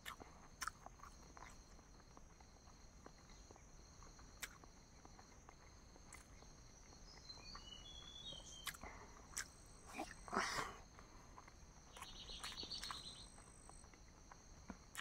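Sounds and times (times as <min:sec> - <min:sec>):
person chewing: 0:00.0 - 0:06.5, 0:08.5 - 0:10.4, 0:11.2 - 0:15.0
insect trill: 0:00.0 - 0:15.0
bird chirps: 0:07.0 - 0:08.9, 0:11.9 - 0:13.8.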